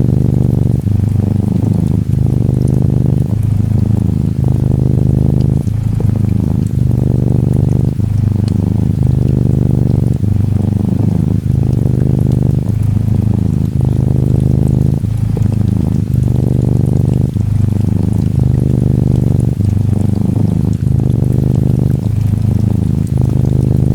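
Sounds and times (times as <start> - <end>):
cat purring: 0.0 - 23.9
faint rain ticks: 0.0 - 23.9.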